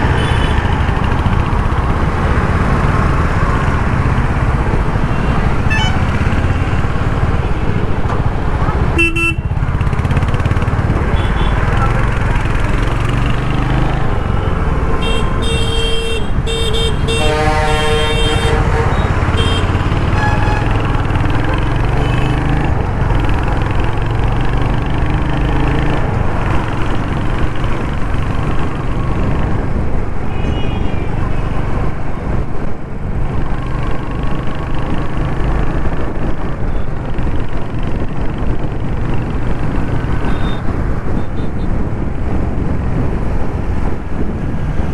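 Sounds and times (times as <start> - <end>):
vehicle horns honking: 0.0 - 1.1, 2.4 - 23.2, 30.2 - 31.6, 40.1 - 41.8
motorcycle engine running: 0.0 - 29.6
wind and road noise: 0.0 - 44.9.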